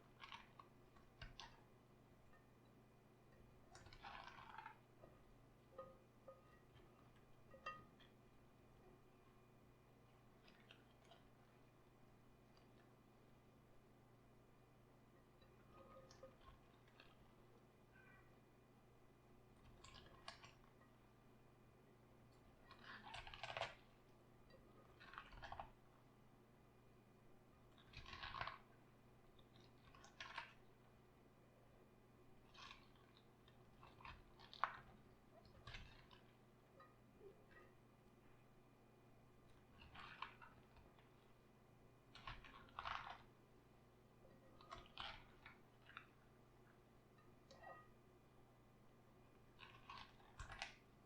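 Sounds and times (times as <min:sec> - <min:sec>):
cabbage crunching: 0:22.7 - 0:23.8, 0:27.8 - 0:28.6, 0:42.1 - 0:43.3, 0:49.5 - 0:50.8.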